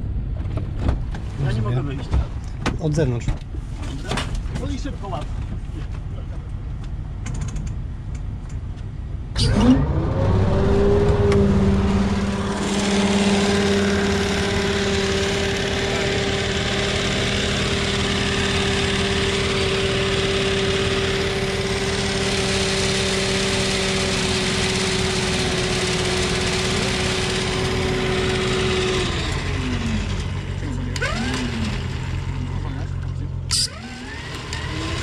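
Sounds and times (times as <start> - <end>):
vehicle engine at steady revs: 0.0 - 35.0
winch whine: 9.3 - 35.0.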